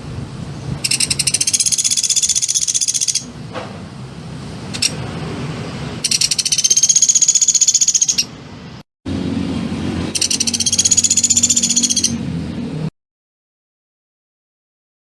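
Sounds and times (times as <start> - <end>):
songbird high-pitched trills: 0.8 - 3.3, 6.0 - 8.3, 10.1 - 12.2.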